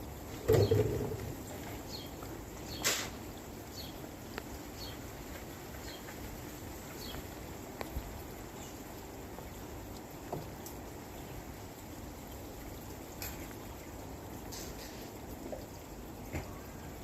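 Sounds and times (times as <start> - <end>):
faint outdoor ambience: 0.0 - 17.0
brief noisy rustle: 2.8 - 3.2.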